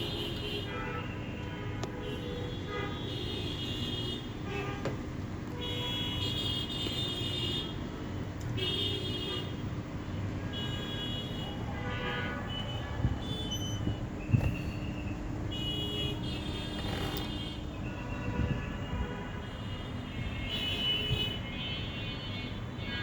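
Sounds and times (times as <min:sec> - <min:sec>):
vehicle horns honking: 0:00.0 - 0:07.8, 0:08.5 - 0:09.7, 0:10.4 - 0:14.7, 0:15.5 - 0:23.0
street traffic rumbling: 0:00.0 - 0:23.0.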